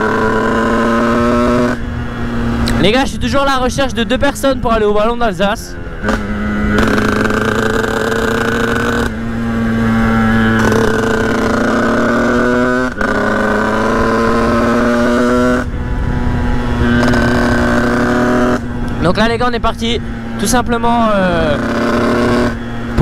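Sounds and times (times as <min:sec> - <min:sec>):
motorcycle engine at high revs: 0:00.0 - 0:23.0.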